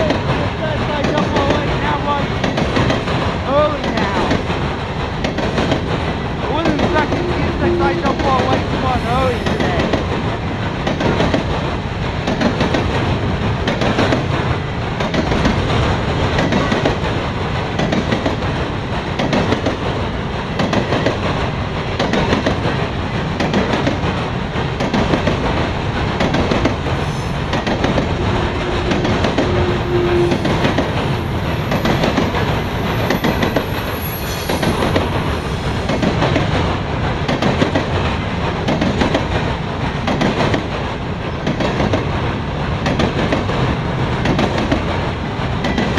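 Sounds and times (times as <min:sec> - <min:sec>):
train wheels clacking over rail joints: 0:00.0 - 0:45.9
high wheel squeal: 0:28.2 - 0:30.7, 0:33.2 - 0:34.9.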